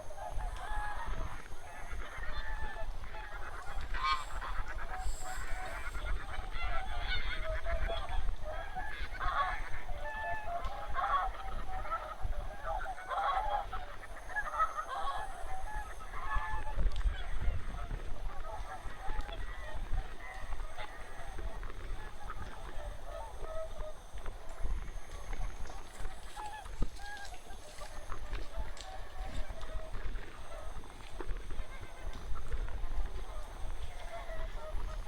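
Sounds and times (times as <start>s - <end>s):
flock of geese honking: 0.0s - 35.0s.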